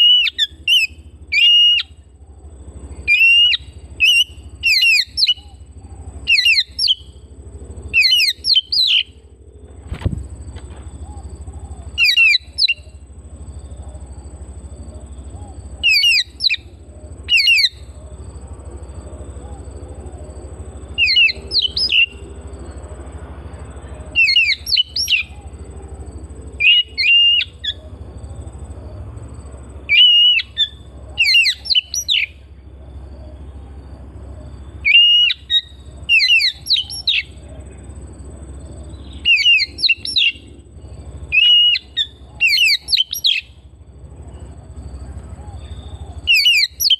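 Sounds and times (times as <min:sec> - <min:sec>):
bird chirping in rapid bursts: 0:00.0 - 0:02.1, 0:02.9 - 0:07.3, 0:07.9 - 0:09.2, 0:11.2 - 0:13.1, 0:14.7 - 0:18.0, 0:20.8 - 0:22.3, 0:24.1 - 0:25.4, 0:26.5 - 0:27.8, 0:29.9 - 0:32.4, 0:34.7 - 0:37.4, 0:38.8 - 0:43.6, 0:45.6 - 0:46.9
steady low hum: 0:00.0 - 0:46.9.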